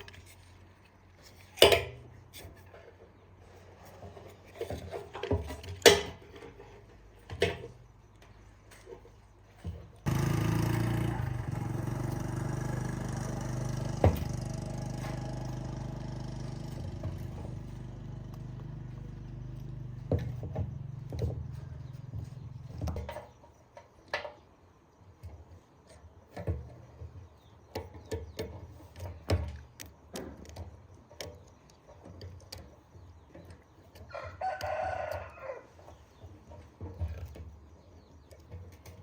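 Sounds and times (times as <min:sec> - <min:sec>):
low engine hum: 0:10.0 - 0:23.1
rooster crowing: 0:34.1 - 0:35.8.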